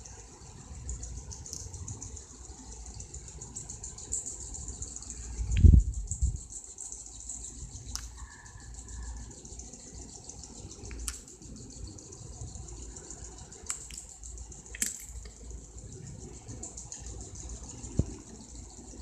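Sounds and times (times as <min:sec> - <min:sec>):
high insect trill: 0:00.0 - 0:19.0
sharp clicks: 0:10.8 - 0:11.6, 0:13.5 - 0:15.4.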